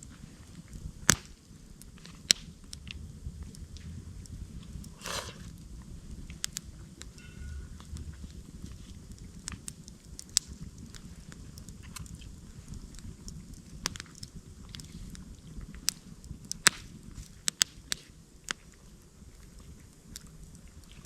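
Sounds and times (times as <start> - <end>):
low fire rumble: 0.2 - 7.2, 7.8 - 17.4, 18.6 - 21.0
campfire crackling and popping: 4.2 - 5.5, 9.0 - 17.8.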